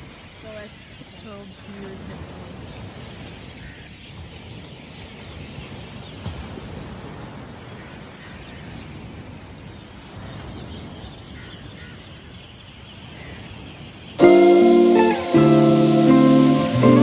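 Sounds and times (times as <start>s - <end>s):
outdoor background noise: 0.0s - 14.2s
guitar music: 14.2s - 17.0s.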